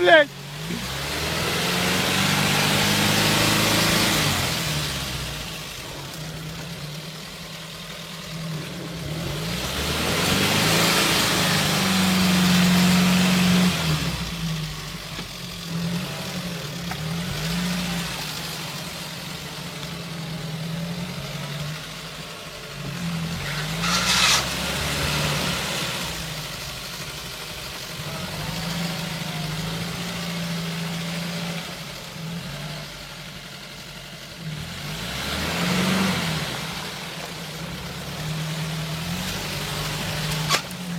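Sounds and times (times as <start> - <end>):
engine revving: 0.0 - 40.9
short sharp hiss: 23.4 - 24.6.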